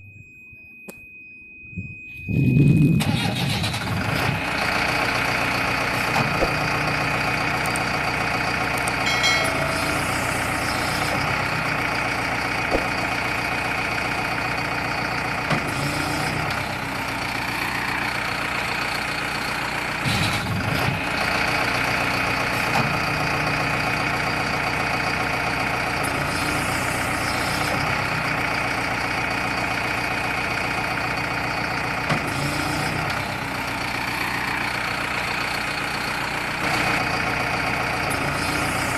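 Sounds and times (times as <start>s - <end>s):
engine idling: 2.2s - 38.9s.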